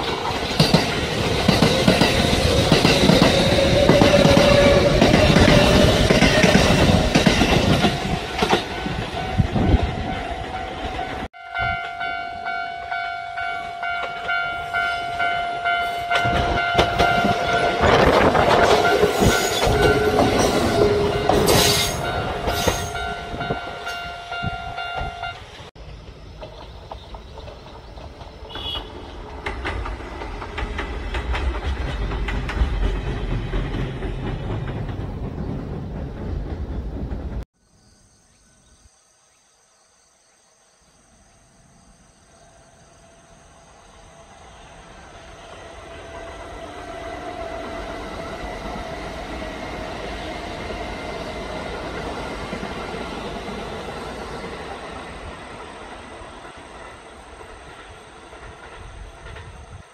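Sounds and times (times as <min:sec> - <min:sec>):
wheels clacking over rail joints: 0:00.0 - 0:12.1, 0:13.8 - 0:24.0, 0:25.0 - 0:37.4
train rumble: 0:00.0 - 0:37.5, 0:42.6 - 0:59.9.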